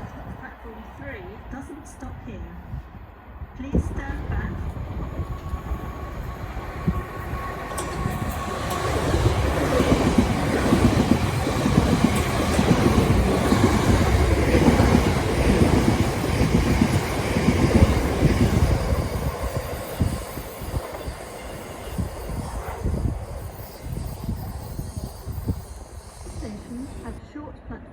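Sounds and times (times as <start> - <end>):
train passing: 0.0 - 27.9
wheels clattering over rails: 6.9 - 18.8.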